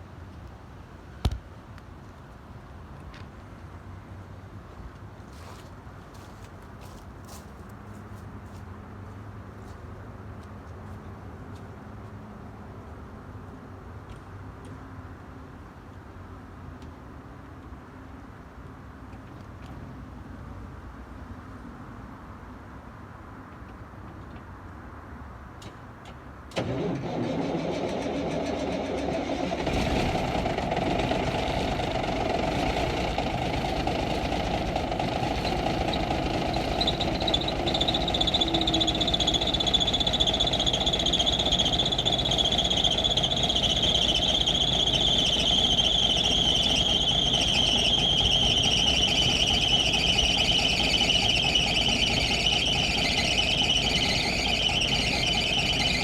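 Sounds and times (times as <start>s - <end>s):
belts squealing with high whine: 26.6s - 56.0s
diesel engine running rough: 26.6s - 56.0s
starter motor cranking: 26.6s - 56.0s.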